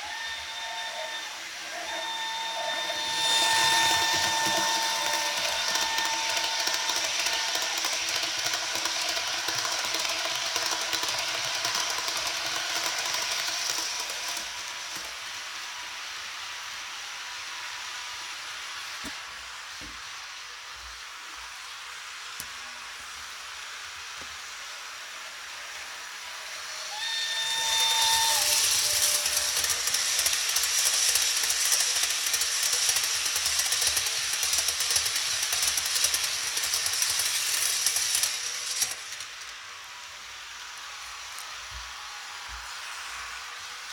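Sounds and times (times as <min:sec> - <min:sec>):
loud hiss: 0:00.0 - 0:43.9
model locomotive horn note: 0:00.2 - 0:07.7.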